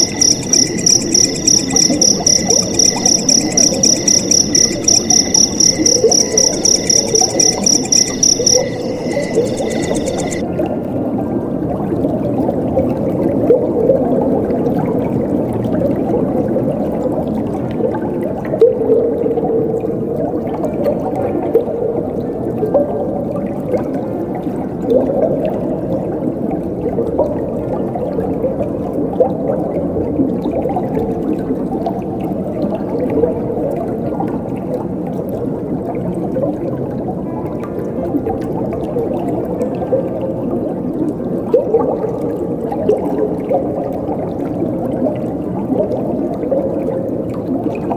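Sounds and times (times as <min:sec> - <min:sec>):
crickets chirping: 0:00.0 - 0:10.4.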